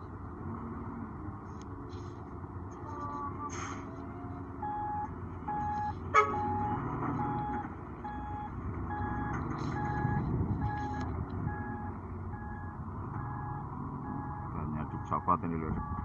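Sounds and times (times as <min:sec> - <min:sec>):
diesel engine rumble: 0:00.0 - 0:16.0
reversing alarm beeping: 0:04.6 - 0:16.0.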